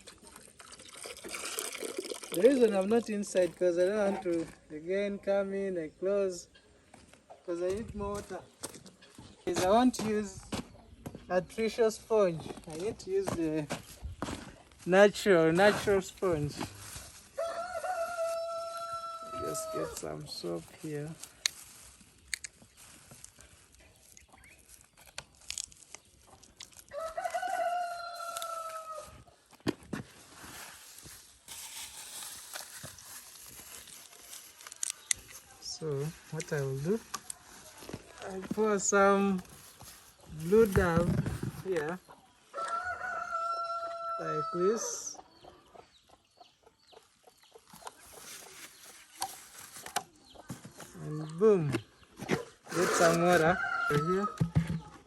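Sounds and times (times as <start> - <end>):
chickens clucking and peeping: 6.4 - 9.6, 41.8 - 53.0
rooster crowing: 17.4 - 20.0, 26.9 - 29.2, 42.5 - 44.7, 53.4 - 54.4.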